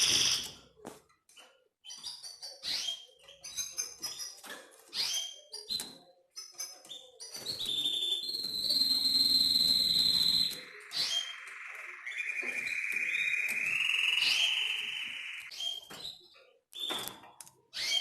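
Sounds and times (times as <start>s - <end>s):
canary singing: 0.0s - 0.6s, 1.8s - 18.0s.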